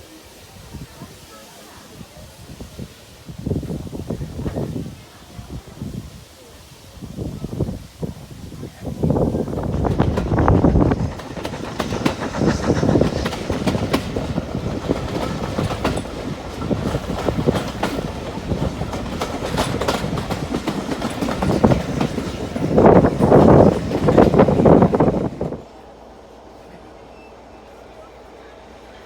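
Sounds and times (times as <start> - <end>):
train wheels clattering over rails: 8.8 - 25.7.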